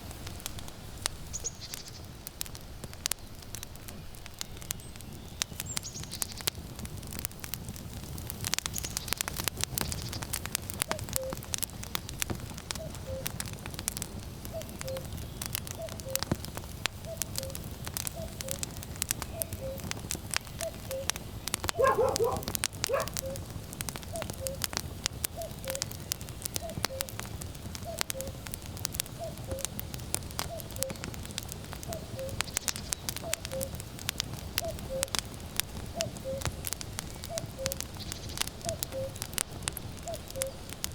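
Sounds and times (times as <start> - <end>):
wood fire crackling and popping: 0.0 - 40.9
cuckoo calling: 10.9 - 11.5, 12.8 - 13.4, 14.5 - 16.3, 17.0 - 18.7, 19.3 - 19.9, 20.5 - 23.5, 24.1 - 24.7, 25.4 - 26.0, 26.6 - 27.2, 27.8 - 28.4, 29.2 - 29.7, 30.4 - 31.1, 31.9 - 32.6, 34.6 - 35.2, 36.0 - 36.5, 37.2 - 37.9, 38.6 - 39.2, 40.0 - 40.7.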